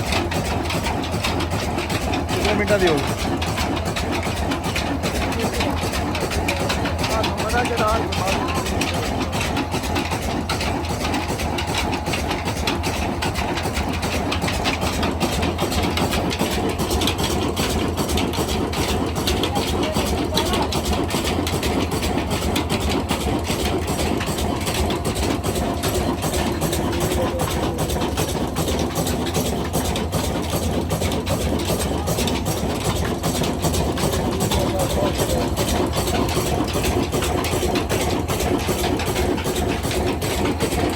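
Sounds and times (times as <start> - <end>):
diesel engine idling: 0.0 - 40.9.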